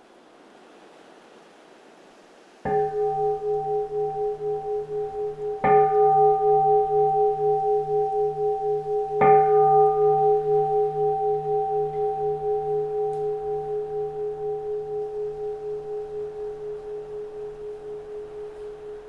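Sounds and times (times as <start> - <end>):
bowl bell ringing: 2.7 - 19.0.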